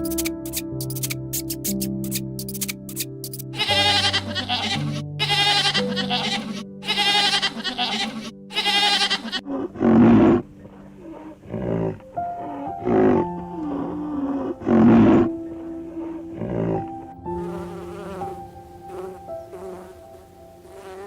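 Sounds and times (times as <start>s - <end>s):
soft background music: 0.0s - 21.0s
quavering bleating calls: 3.6s - 9.5s
deep animal calls: 3.6s - 16.9s.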